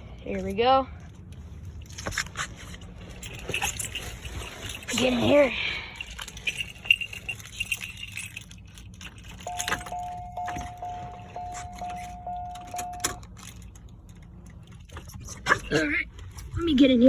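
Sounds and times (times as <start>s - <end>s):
keys jangling: 1.6s - 16.6s
car warning chime dinging: 9.3s - 13.6s.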